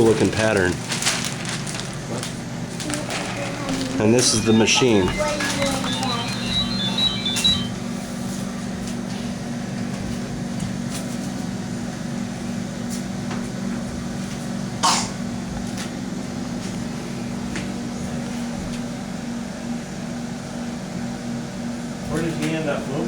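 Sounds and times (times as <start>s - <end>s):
machine hum: 0.7s - 18.2s.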